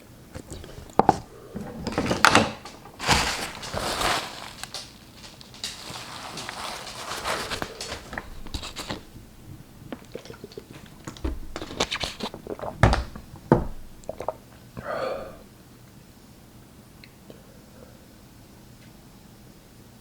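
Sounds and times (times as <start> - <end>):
slurping and chewing noodles: 2.9 - 12.8.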